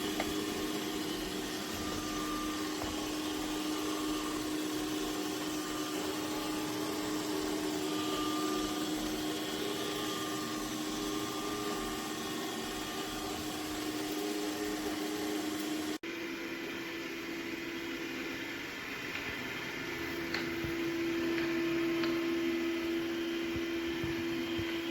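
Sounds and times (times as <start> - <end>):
robot vacuum humming: 0.0 - 24.9.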